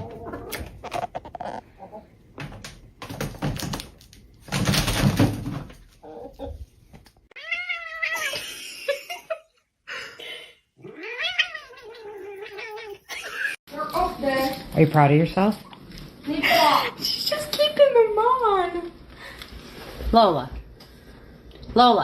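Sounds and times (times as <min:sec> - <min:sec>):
cat meowing: 0:07.4 - 0:08.3, 0:10.8 - 0:13.1.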